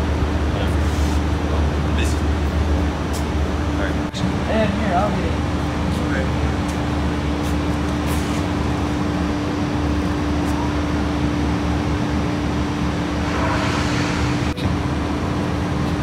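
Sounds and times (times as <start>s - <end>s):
steady mechanical hum: 0.0s - 16.0s
low rumble: 12.8s - 15.8s.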